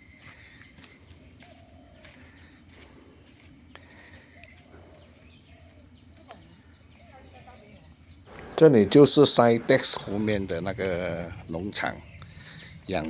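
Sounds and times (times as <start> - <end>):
high-pitched insect drone: 6.2 - 13.0.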